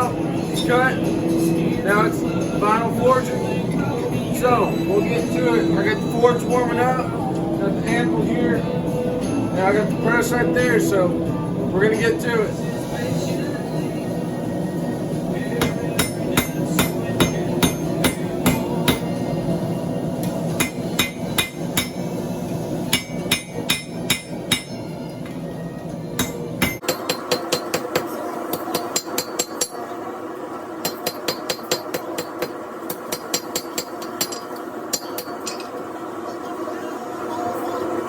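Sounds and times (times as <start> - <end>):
hammer striking steel on anvil: 15.6 - 19.2, 20.2 - 22.1, 22.9 - 25.4, 26.2 - 29.8, 30.8 - 35.7.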